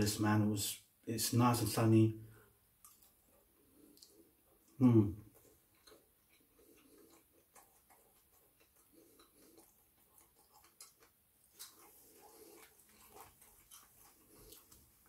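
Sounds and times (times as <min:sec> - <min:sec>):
faint chewing: 0:02.3 - 0:15.0
soft mouth clicks: 0:03.9 - 0:04.8.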